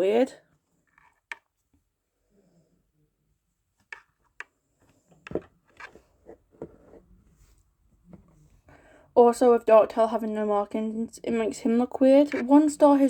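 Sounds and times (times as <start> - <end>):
plastic knocks and rubbing: 3.8 - 8.4.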